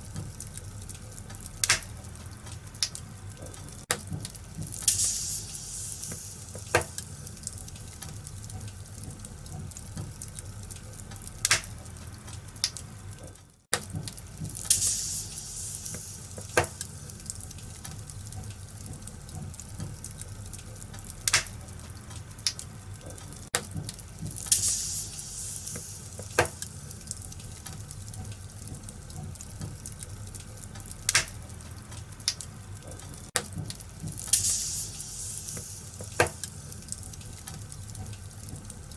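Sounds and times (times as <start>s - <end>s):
wood fire crackling: 0.0s - 38.9s
sharp pops: 1.6s - 2.0s, 34.1s - 36.5s.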